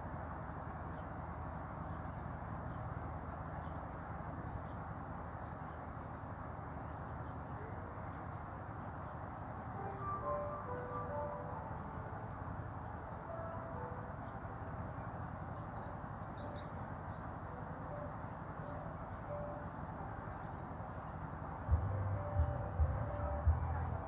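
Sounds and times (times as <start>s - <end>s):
brief chirps: 9.8s - 11.8s
low background hiss and rumble: 11.4s - 24.0s.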